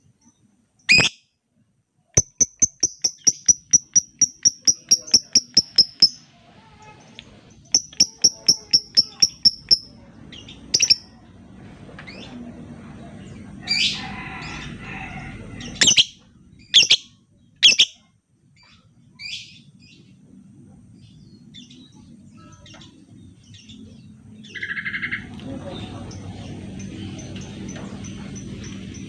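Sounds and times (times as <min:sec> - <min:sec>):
bird chirping shrilly: 0:00.9 - 0:01.2, 0:02.2 - 0:06.2, 0:07.7 - 0:09.9, 0:10.7 - 0:11.1, 0:15.8 - 0:18.0.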